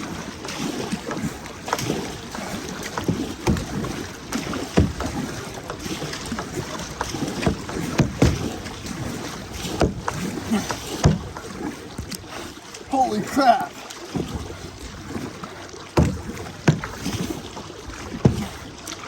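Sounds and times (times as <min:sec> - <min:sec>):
paddle knocks: 0:00.0 - 0:19.0
paddle splashing through water: 0:00.0 - 0:19.0
steady watery wash: 0:00.0 - 0:19.0.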